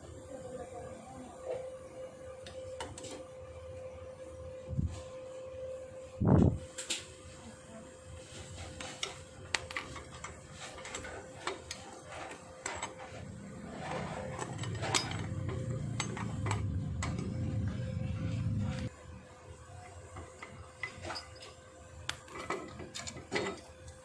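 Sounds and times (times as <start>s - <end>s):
metal tools clinking: 14.3s - 16.6s
low rumble: 16.7s - 18.9s.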